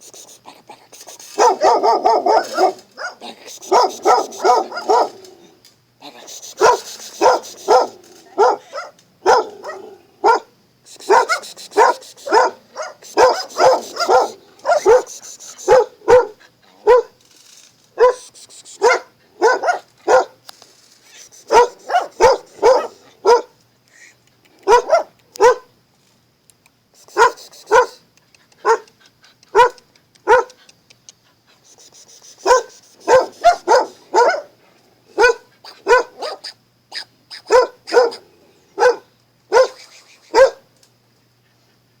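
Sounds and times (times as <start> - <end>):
dog barking: 1.4 - 5.2, 6.6 - 10.5, 11.1 - 17.2, 18.0 - 20.4, 21.5 - 23.6, 24.6 - 25.7, 27.2 - 28.0, 28.6 - 28.9, 29.5 - 30.6, 32.4 - 34.5, 35.2 - 40.7.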